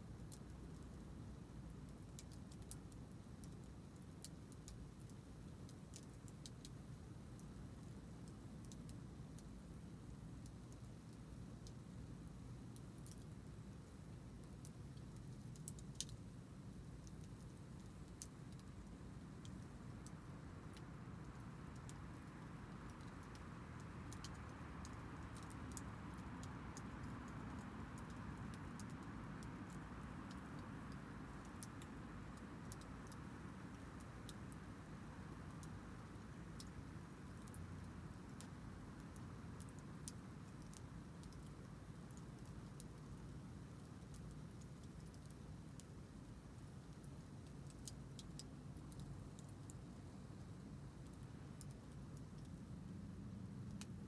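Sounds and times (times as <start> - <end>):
low steady fire rumble: 0.0 - 54.0
campfire crackling: 13.0 - 54.0.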